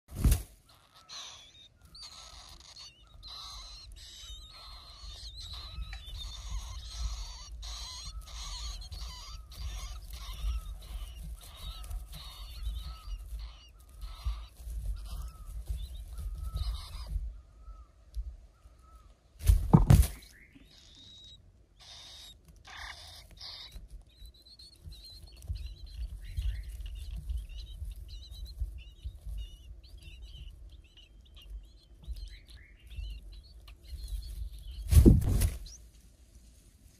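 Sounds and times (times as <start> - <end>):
birds calling: 0.2 - 36.0
loud thump: 19.4 - 20.2.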